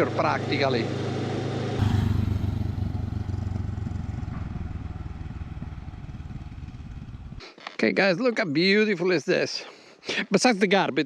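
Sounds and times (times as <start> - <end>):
road noise: 0.0 - 7.5
wind: 0.0 - 11.0
motorcycle engine running: 0.9 - 7.4.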